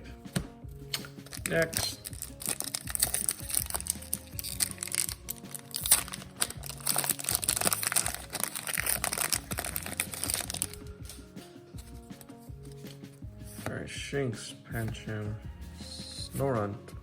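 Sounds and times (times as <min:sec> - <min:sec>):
background music: 0:00.0 - 0:17.0
foil wrapper crinkling: 0:01.2 - 0:11.2.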